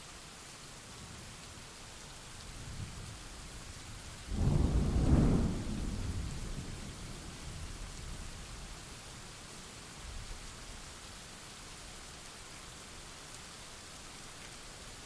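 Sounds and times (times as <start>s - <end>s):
steady rain: 0.0s - 15.0s
faint low thunder rumble: 3.9s - 8.8s
loud thunderclap rolling: 4.3s - 7.6s.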